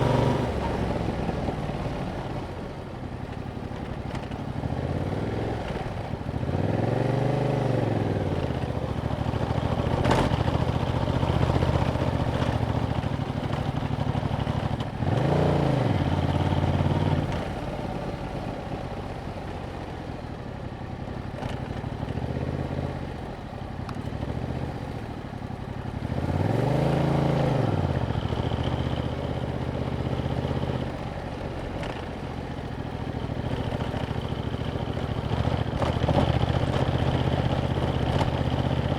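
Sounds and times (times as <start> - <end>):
motorcycle engine revving: 0.0 - 2.6, 4.1 - 17.8, 26.0 - 38.9.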